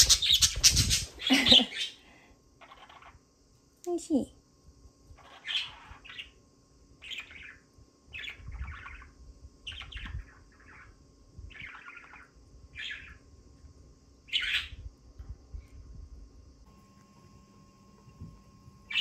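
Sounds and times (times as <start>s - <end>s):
parrots chirping: 0.0s - 2.0s, 2.6s - 3.2s, 5.2s - 6.4s, 7.0s - 13.2s, 14.3s - 14.8s.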